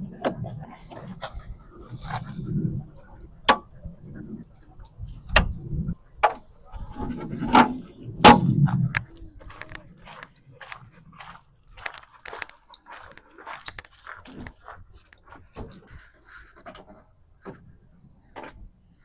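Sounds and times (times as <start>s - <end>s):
low rumble: 0.0s - 9.6s
sharp bangs: 8.2s - 8.7s.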